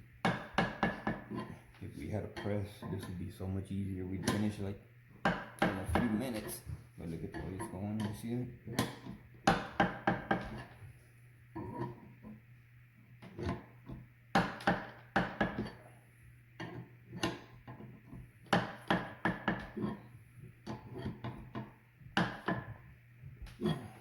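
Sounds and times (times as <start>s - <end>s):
hand tools knocking on metal: 4.2s - 4.6s, 5.2s - 10.6s.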